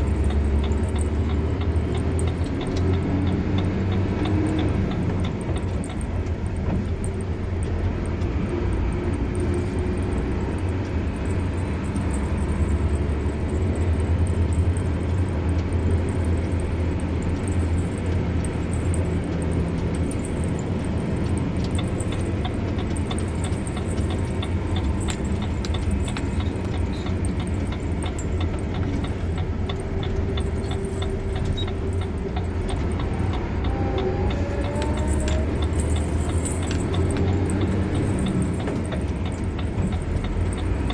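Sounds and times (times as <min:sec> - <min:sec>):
car engine and tyre rumble: 0:00.0 - 0:40.9.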